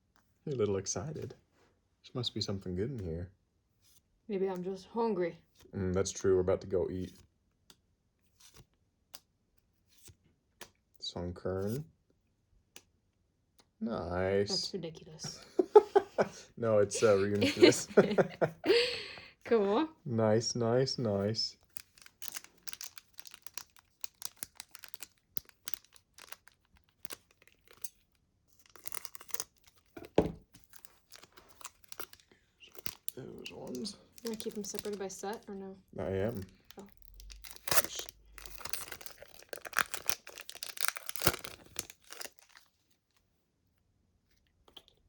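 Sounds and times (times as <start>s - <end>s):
trading cards clicking and crinkling: 21.6s - 35.5s, 36.2s - 42.7s.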